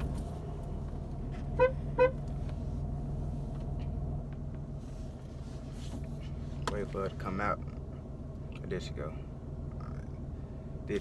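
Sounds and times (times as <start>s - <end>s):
car engine idling: 0.0s - 11.0s
car horn beeps: 1.4s - 2.3s.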